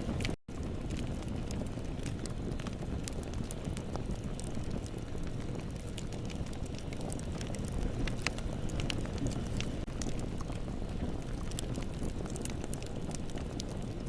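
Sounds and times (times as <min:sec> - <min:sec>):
bonfire crackling: 0:00.0 - 0:14.0.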